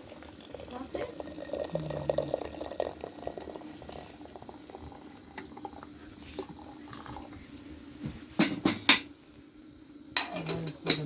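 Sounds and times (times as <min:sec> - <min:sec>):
liquid bubbling in a pot: 0:00.0 - 0:07.8.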